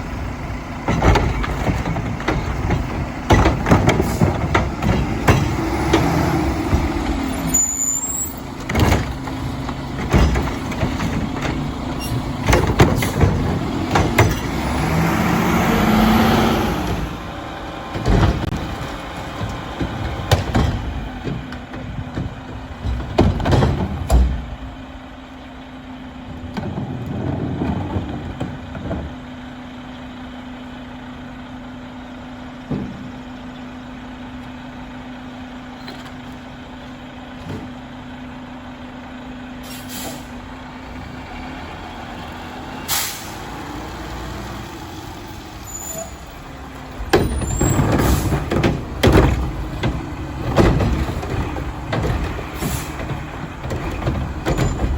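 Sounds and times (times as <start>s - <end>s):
metal bangs and clanks: 0.0s - 24.9s, 45.4s - 54.9s
garbage truck engine revving: 0.0s - 54.9s.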